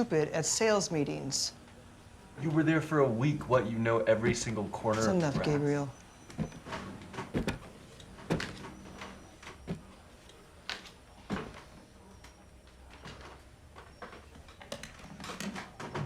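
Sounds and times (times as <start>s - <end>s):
soft knocks and clicks: 6.3s - 9.9s.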